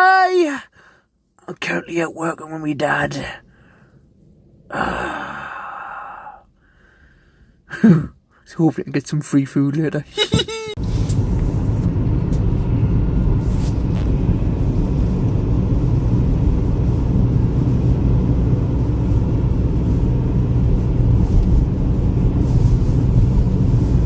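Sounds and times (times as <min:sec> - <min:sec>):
car engine and road noise: 0:10.1 - 0:24.0.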